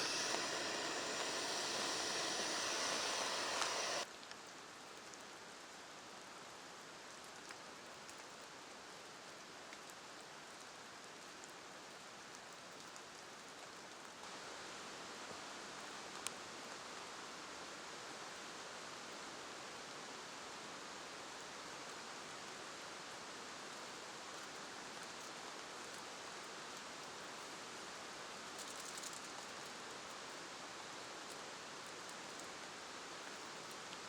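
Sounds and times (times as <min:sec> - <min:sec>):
faint ticks of raindrops: 0:00.0 - 0:14.3, 0:15.2 - 0:17.1, 0:23.6 - 0:34.0
steady rain falling: 0:00.0 - 0:34.0.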